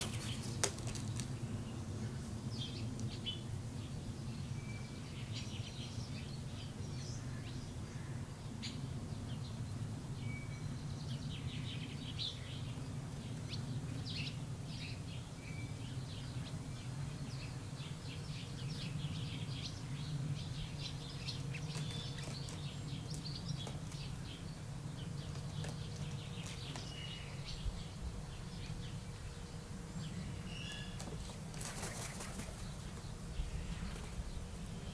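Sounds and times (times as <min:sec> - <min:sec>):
small birds chirping: 0:10.3 - 0:34.9.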